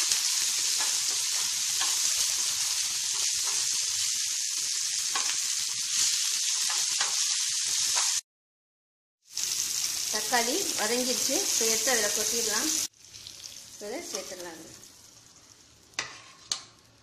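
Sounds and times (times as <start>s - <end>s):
food sizzling in oil: 0.0s - 8.2s, 9.2s - 17.0s
spatula scraping and tapping pan: 16.0s - 16.7s.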